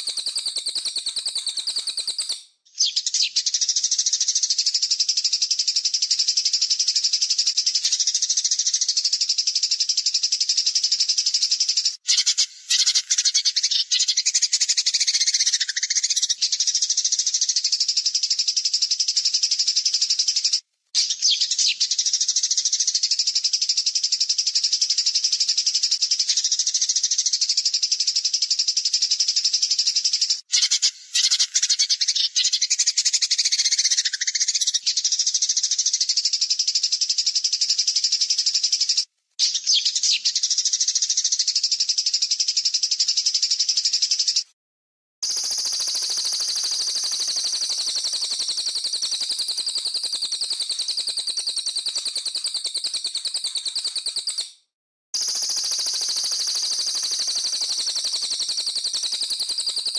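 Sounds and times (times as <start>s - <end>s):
songbird harsh rapid trill: 0.0s - 4.3s, 11.0s - 17.5s, 30.4s - 35.2s, 45.2s - 59.9s.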